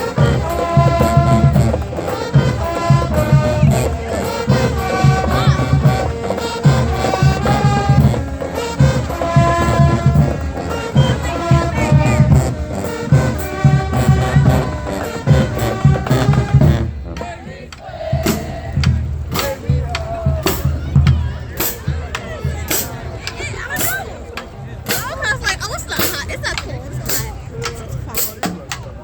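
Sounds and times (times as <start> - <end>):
brass holding chords: 0.0 - 17.5
steady drum beat: 0.0 - 29.0.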